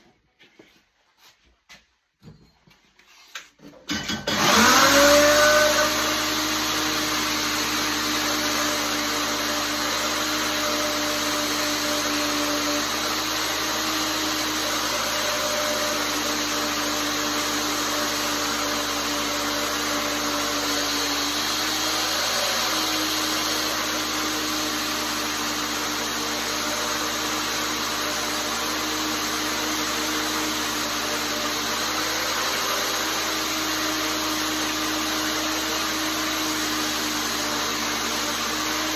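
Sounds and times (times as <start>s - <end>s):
belt grinder motor whine: 4.3s - 38.9s.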